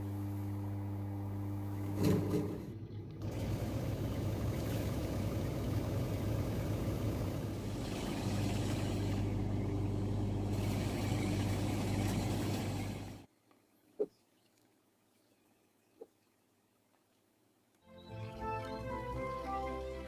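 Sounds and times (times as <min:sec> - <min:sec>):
machinery humming and droning: 0:00.0 - 0:13.3.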